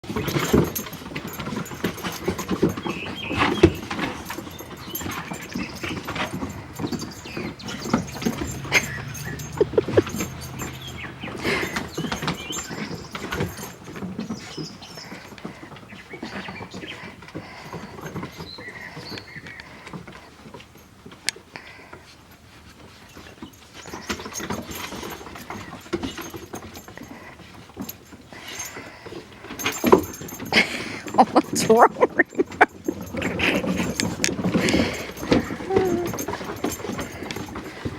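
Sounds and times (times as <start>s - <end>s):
dogs panting: 0.0s - 37.9s
dogs scuffling: 0.0s - 37.9s
high squeaks: 0.1s - 17.0s, 29.6s - 37.9s.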